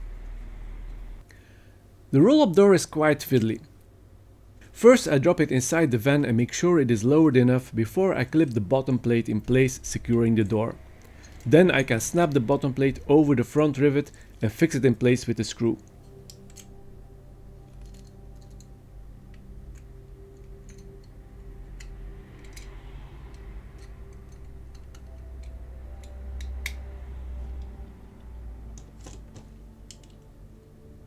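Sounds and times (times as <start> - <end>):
soft background music: 0.0 - 31.0
small parts clicking and tapping: 10.9 - 11.5, 15.8 - 16.8, 17.6 - 26.8, 27.5 - 30.3.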